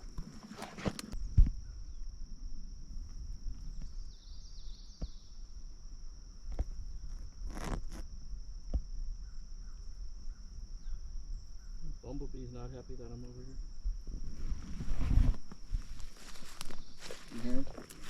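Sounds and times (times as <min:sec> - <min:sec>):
high-pitched insect trill: 0:00.0 - 0:18.0
footsteps through dry brush: 0:14.4 - 0:18.0
twigs snapping: 0:16.2 - 0:18.0.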